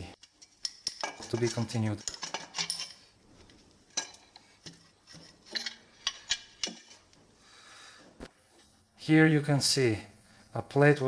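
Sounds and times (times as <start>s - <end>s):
metal engine parts clinking: 0.2s - 7.1s.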